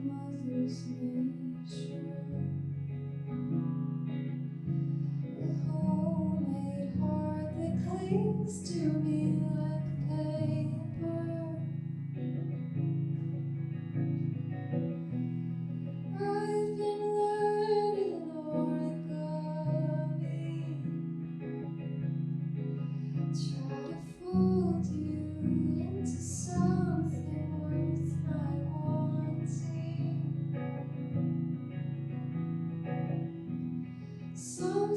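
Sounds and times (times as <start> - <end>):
person singing: 0.0 - 2.8, 5.2 - 11.8, 16.1 - 21.0, 23.1 - 30.5, 34.2 - 34.9
guitar accompaniment: 0.0 - 34.9.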